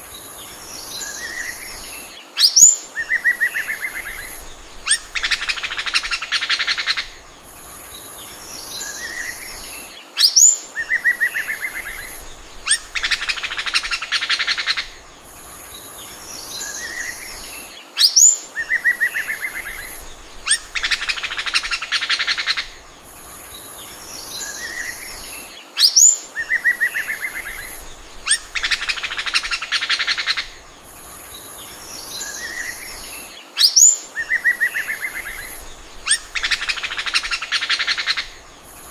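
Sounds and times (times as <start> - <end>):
bird whistling and trilling: 2.4 - 7.0, 10.2 - 14.9, 18.0 - 22.7, 25.8 - 30.5, 33.6 - 38.4.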